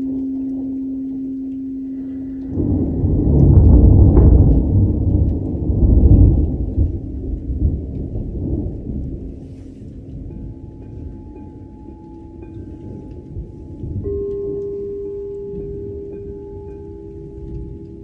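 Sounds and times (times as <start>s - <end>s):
singing bowl tone: 0.0s - 4.1s, 9.2s - 18.0s
rain: 0.0s - 18.0s
thunder rumble: 1.4s - 18.0s.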